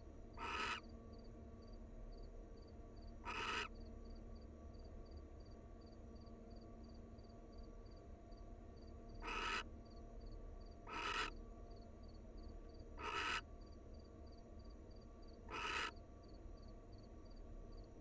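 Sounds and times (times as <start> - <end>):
owl screeching: 0.4 - 0.8, 3.2 - 3.7, 9.2 - 9.6, 10.9 - 11.3, 13.0 - 13.4, 15.5 - 16.0
cricket chirping: 0.4 - 8.0, 8.8 - 18.0.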